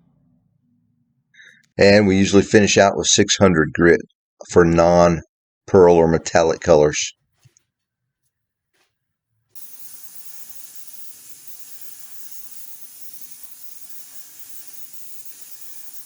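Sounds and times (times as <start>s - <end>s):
paint spray gun hissing: 9.6s - 16.0s.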